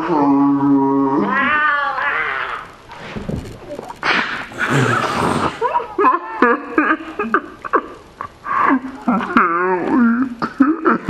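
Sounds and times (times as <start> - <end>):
angry cat yowling: 1.1 - 2.8.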